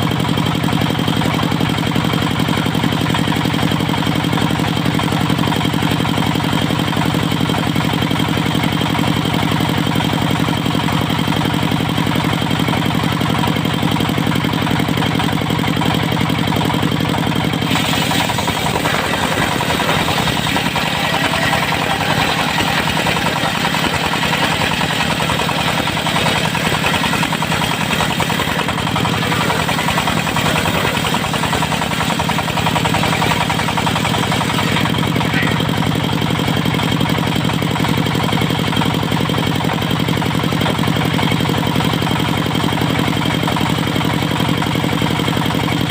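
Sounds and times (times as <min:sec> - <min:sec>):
diesel engine running: 0:00.0 - 0:45.9
saw blade cutting log: 0:17.5 - 0:35.9.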